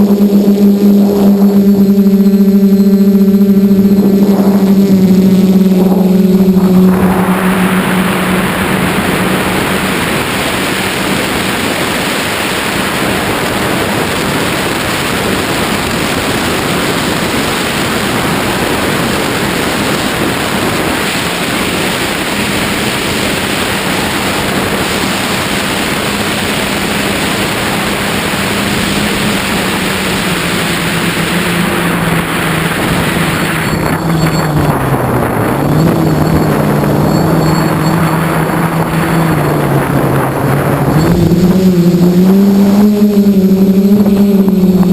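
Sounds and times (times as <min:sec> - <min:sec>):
drone propellers humming: 0:00.0 - 0:44.9
loud steady rushing noise: 0:00.0 - 0:44.9.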